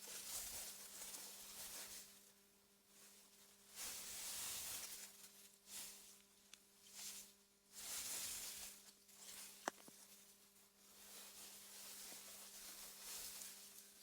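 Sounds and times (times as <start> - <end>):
clicks: 9.6 - 9.9.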